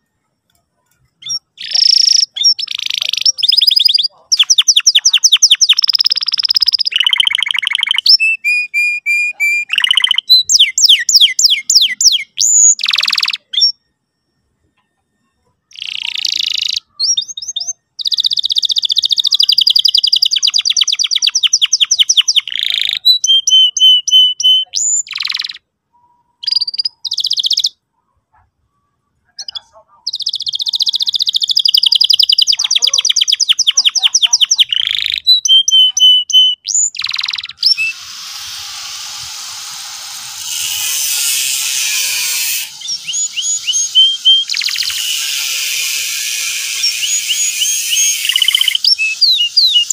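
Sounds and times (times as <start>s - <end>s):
canary singing: 0.0s - 13.9s, 15.0s - 28.4s, 29.3s - 49.9s.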